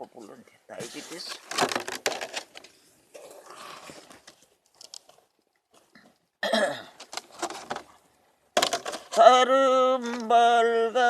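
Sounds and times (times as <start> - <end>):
person coughing: 6.4 - 7.0.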